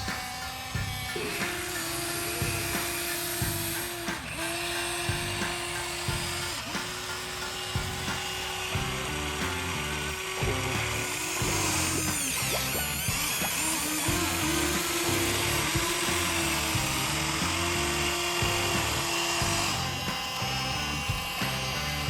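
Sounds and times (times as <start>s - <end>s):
background music: 0.0s - 22.0s
small electric motor whining: 0.0s - 22.0s.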